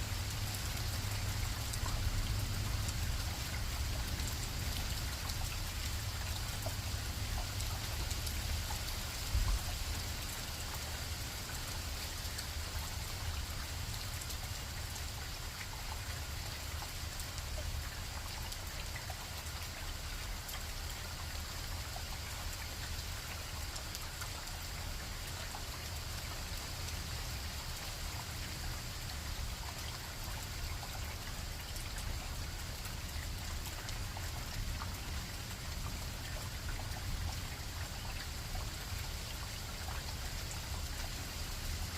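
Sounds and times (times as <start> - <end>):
rain hiss: 0.0 - 41.9
drip ticks: 0.2 - 41.9.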